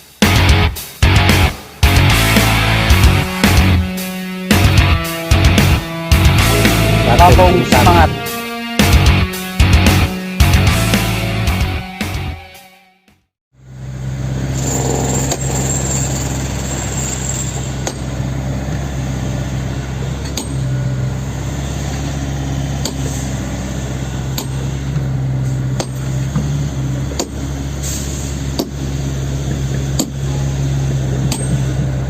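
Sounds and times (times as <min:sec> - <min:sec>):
jackhammer chipping concrete: 0:14.5 - 0:18.1.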